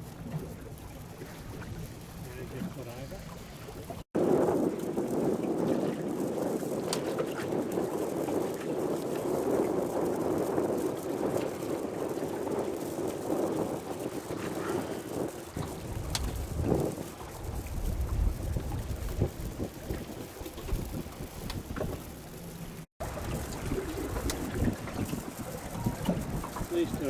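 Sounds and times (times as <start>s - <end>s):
wind and water rushing: 0.0s - 27.0s
faint clicks: 10.4s - 27.0s.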